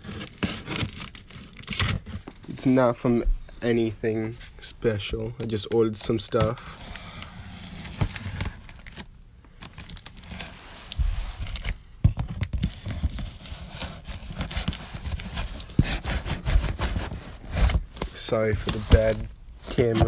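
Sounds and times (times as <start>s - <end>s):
tape and packaging tearing: 0.0s - 2.2s, 14.2s - 20.0s.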